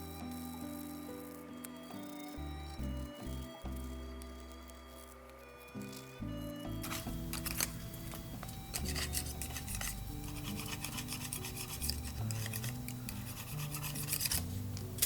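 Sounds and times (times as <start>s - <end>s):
background music: 0.0s - 15.0s
grill brush scraping metal grill: 8.7s - 15.0s.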